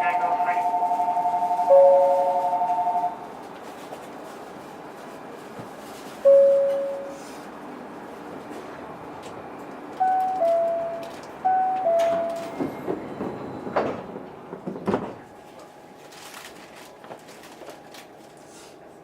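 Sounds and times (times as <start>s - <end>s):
two-note door chime: 0.1s - 3.2s, 6.3s - 7.1s, 10.0s - 12.6s
sliding doors shutting: 10.0s - 15.2s.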